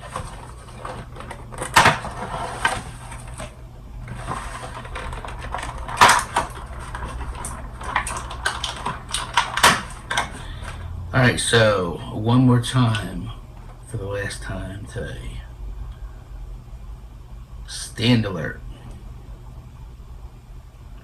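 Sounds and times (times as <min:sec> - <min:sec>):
packaging rustling and scraping: 0:00.0 - 0:11.0
loud snaps or knocks: 0:04.1 - 0:10.8.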